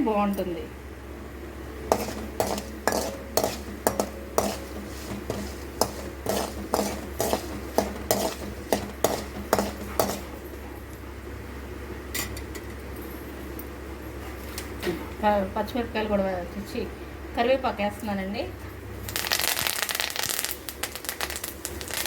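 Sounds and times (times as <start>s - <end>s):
seeds frying in oil: 1.9s - 10.6s, 19.0s - 22.0s
metal spoon scraping a pan: 1.9s - 10.7s.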